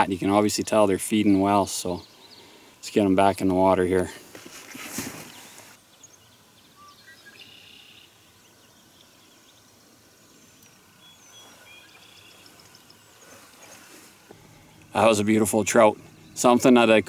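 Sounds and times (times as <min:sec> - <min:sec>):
faint bird chirps and whistles: 0:05.2 - 0:13.9.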